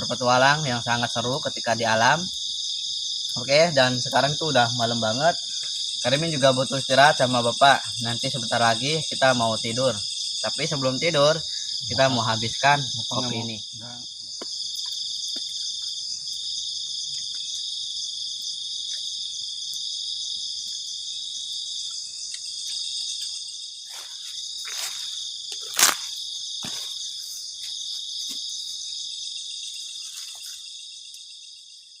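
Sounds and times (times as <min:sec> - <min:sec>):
crickets chirring: 0:00.0 - 0:32.0
sharp crack: 0:25.6 - 0:26.8.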